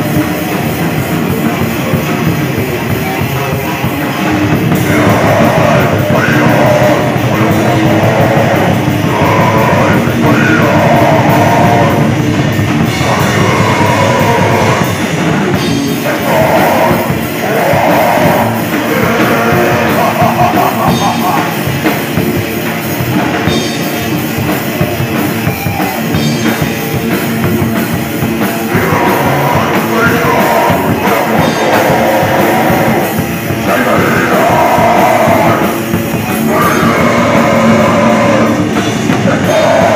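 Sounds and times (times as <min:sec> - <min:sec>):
person singing: 0:00.0 - 0:22.0, 0:28.3 - 0:39.9
heavy rock band playing: 0:00.0 - 0:39.9.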